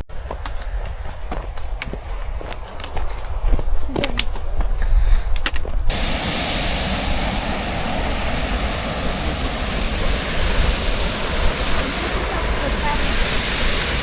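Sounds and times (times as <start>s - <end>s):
waterfall roaring: 5.9s - 14.0s.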